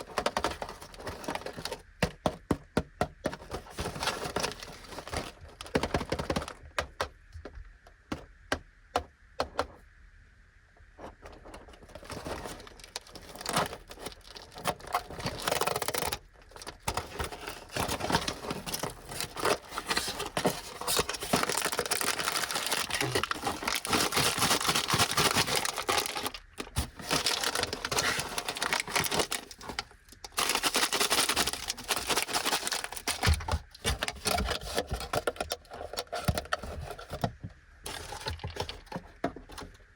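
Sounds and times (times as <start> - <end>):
plastic wrapper crinkling: 11.9 - 37.2, 37.9 - 39.7.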